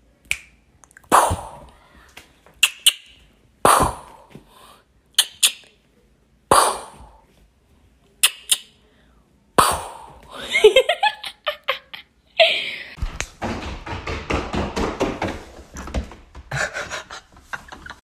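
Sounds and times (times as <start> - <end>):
person making mouth gunshot sounds: 1.0 - 1.8, 3.6 - 4.4, 6.5 - 7.2, 9.6 - 10.3.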